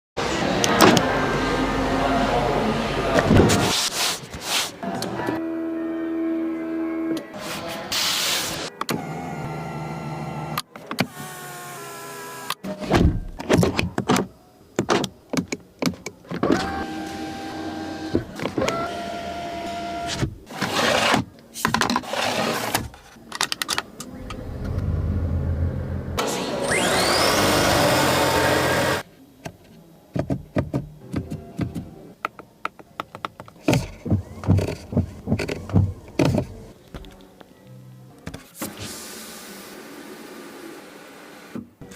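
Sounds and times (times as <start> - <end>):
electric motors whirring: 24.1 - 29.0.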